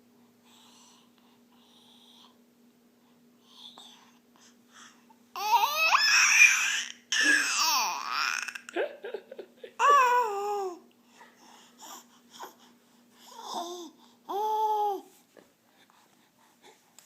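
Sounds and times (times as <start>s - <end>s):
baby babbling: 5.4s - 8.7s, 9.8s - 10.8s, 13.3s - 15.1s.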